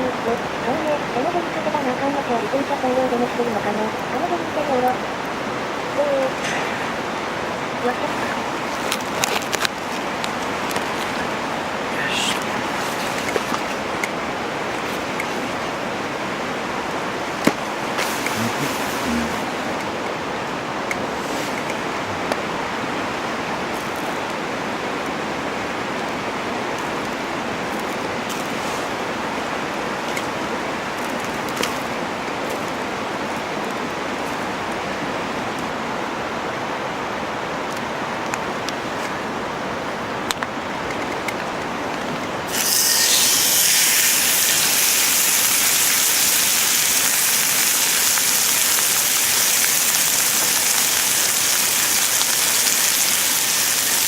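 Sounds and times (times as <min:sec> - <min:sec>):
fire crackles: 0:00.0 - 0:34.7, 0:37.2 - 0:54.0
food sizzling in hot pan: 0:42.5 - 0:54.0.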